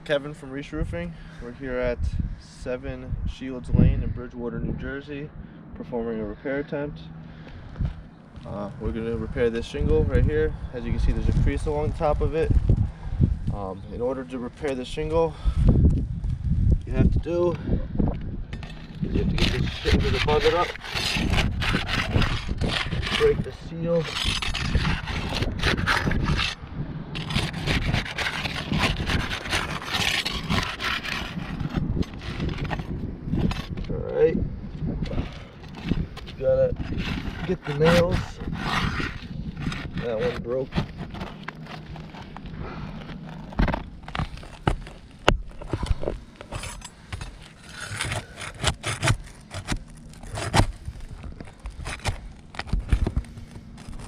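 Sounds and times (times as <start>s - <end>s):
scraping and rubbing roof shingle: 18.5s - 34.0s, 34.9s - 54.0s.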